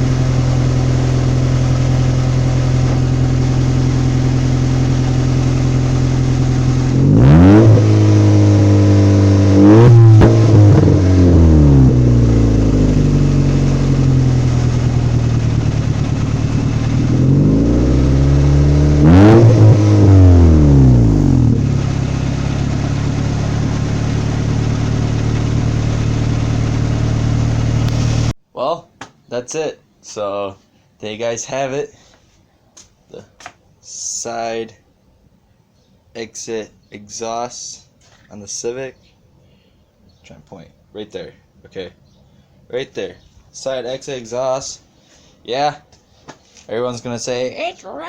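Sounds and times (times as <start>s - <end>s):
car engine idling and revving: 0.0s - 28.4s.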